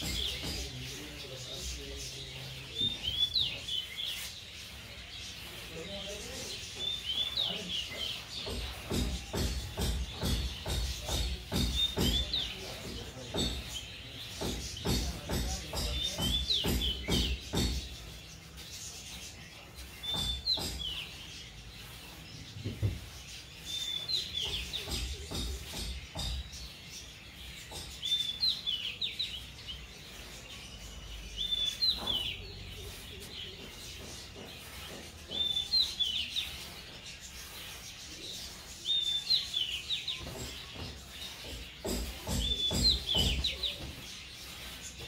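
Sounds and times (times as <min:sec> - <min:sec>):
bird chirping phrase: 0:00.0 - 0:45.0.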